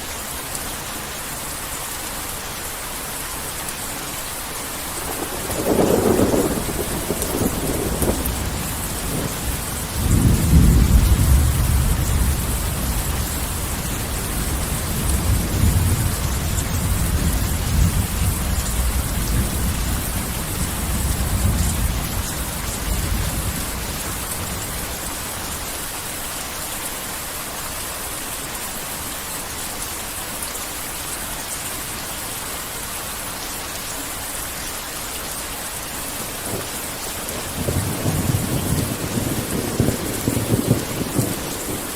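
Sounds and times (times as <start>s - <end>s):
heavy rain: 0.0s - 41.9s
rolling thunder rumble: 5.0s - 25.1s, 36.3s - 41.9s
thunder crack: 5.1s - 9.4s, 37.4s - 41.9s.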